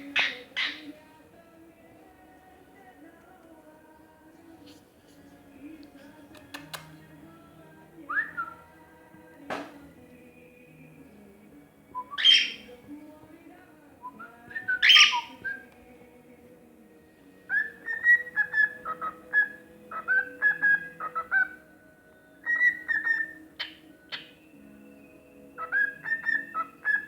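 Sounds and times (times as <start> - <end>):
cockatiel harsh calls: 0.0 - 0.9, 12.2 - 12.7, 14.8 - 15.4, 17.5 - 21.6, 22.5 - 24.3, 25.6 - 27.0
bird chirps: 0.0 - 1.0, 12.0 - 12.8, 14.1 - 15.7, 17.5 - 21.6, 22.4 - 27.0
cockatiel singing: 0.0 - 1.1, 8.0 - 8.8, 11.9 - 12.9, 14.0 - 15.9, 17.4 - 21.7, 22.4 - 27.0.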